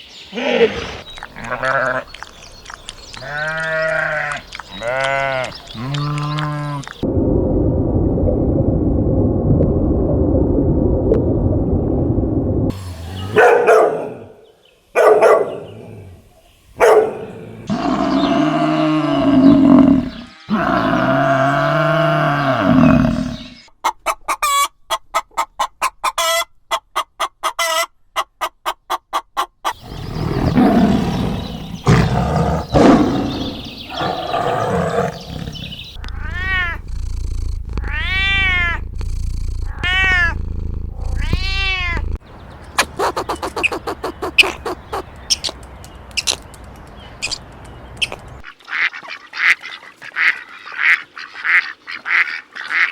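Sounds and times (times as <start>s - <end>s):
low animal rumble: 0.6s - 13.4s, 17.4s - 23.6s, 29.8s - 42.2s
pitched animal calls: 29.7s - 42.2s, 42.8s - 45.6s
fast even clicks: 36.0s - 42.2s.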